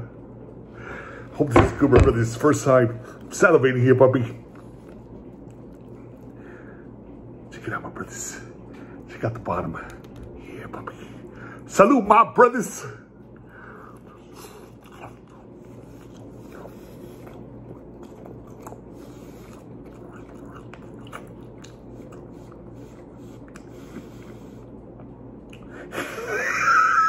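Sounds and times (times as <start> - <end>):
man chewing crunchy food: 4.2 - 7.0, 13.2 - 25.9.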